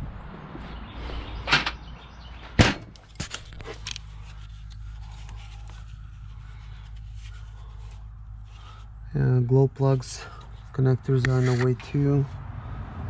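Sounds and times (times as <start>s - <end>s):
steady low hum: 2.6s - 12.8s.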